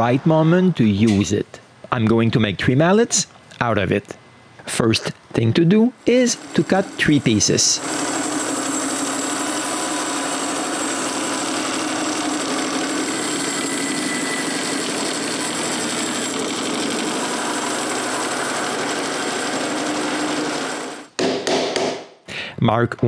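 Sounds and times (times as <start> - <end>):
power saw cutting wood: 6.0 - 21.1.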